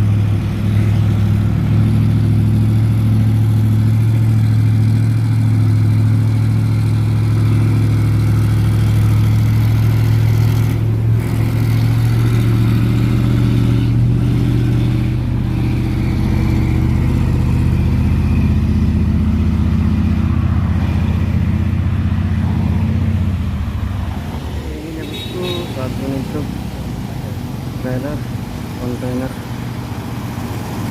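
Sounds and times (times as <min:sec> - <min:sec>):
truck diesel engine pulling uphill: 0:00.0 - 0:30.9.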